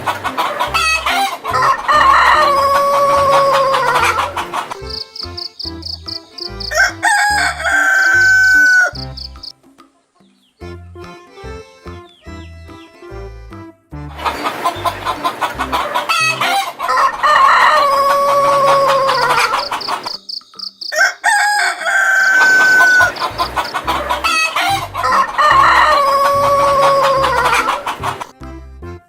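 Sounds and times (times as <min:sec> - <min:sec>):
chickens clucking: 0:00.0 - 0:10.6, 0:14.1 - 0:28.4
rooster crowing: 0:00.4 - 0:09.5, 0:15.7 - 0:20.2, 0:20.8 - 0:28.3.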